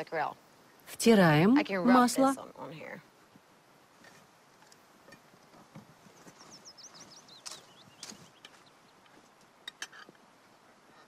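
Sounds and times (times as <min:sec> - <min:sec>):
bird singing high chirps: 0:06.2 - 0:09.0.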